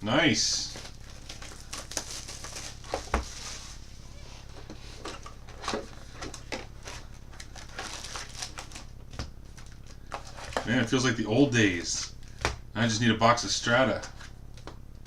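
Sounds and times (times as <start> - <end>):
steady low hum: 0.0 - 15.0
card packs crinkling: 0.1 - 3.9, 4.5 - 11.0.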